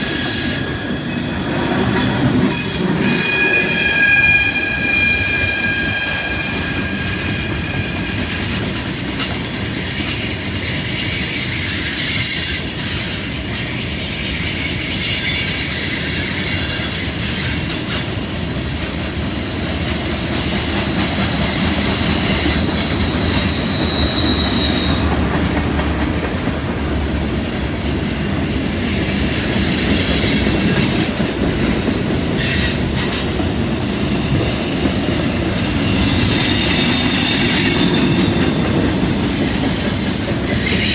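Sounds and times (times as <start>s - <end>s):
wheel flange squeals: 0.0s - 18.1s, 20.5s - 25.3s, 28.8s - 40.9s
train wheels rumbling on rail: 0.0s - 40.9s
wheels clickety-clack: 7.8s - 24.2s, 24.8s - 40.9s.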